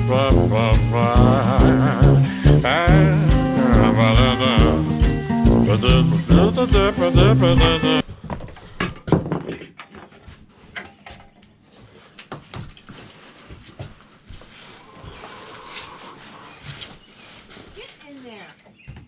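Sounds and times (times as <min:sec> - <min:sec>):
music: 0:00.0 - 0:08.0.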